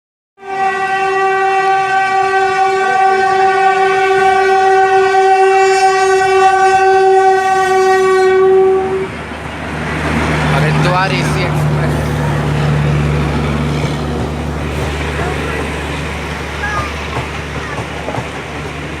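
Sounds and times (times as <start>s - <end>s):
locomotive horn blast: 0.4s - 9.2s.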